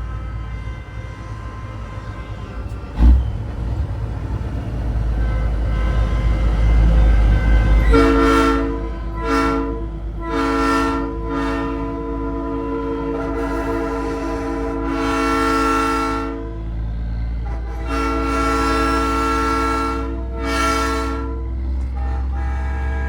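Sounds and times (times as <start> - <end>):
low truck rumble: 0.0 - 23.0
train horn chord blasts: 5.2 - 16.7, 17.4 - 23.0.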